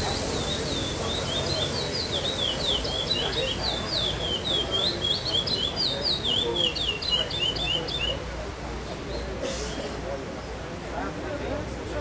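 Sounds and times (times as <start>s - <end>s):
bird singing whistled notes: 0.0s - 8.2s
low background murmur: 0.0s - 12.0s.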